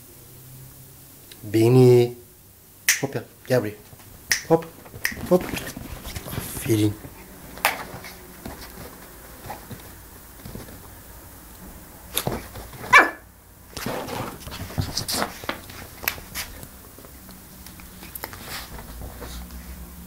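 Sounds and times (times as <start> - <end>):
clicks and scuffles: 3.8 - 11.0, 13.7 - 17.1
puppy barking high: 12.8 - 13.3.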